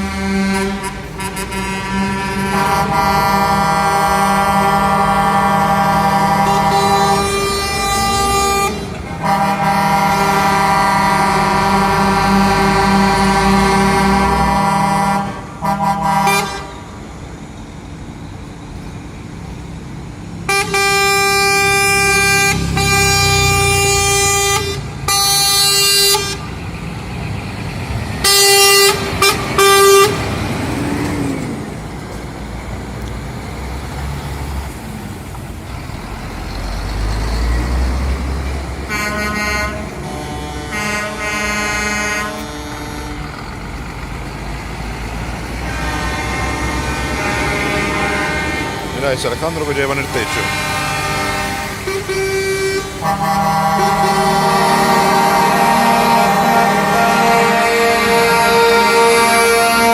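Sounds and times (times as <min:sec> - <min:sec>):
truck air horn blasts: 0:00.0 - 0:16.9, 0:20.5 - 0:26.7, 0:28.2 - 0:30.5, 0:38.8 - 0:43.8, 0:44.8 - 0:59.9
diesel engine rumble: 0:00.0 - 0:59.9.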